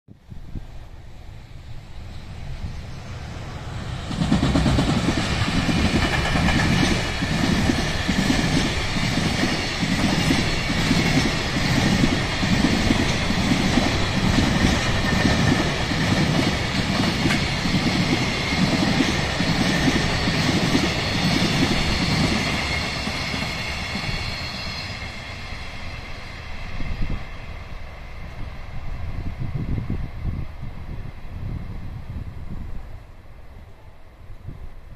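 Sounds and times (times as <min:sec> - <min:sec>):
train rolling rumble: 0:00.3 - 0:34.9
train wheels clattering over rail joints: 0:04.1 - 0:24.7.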